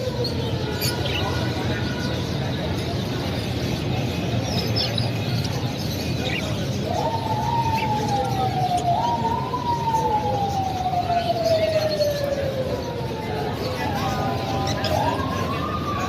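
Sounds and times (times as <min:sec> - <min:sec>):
siren-like wail: 0:00.0 - 0:02.9, 0:06.2 - 0:16.0
market din: 0:00.0 - 0:16.0.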